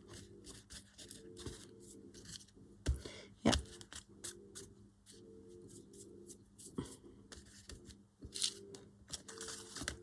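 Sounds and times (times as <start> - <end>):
faint steady hum: 0.0 - 10.0
paper rustling: 7.3 - 10.0.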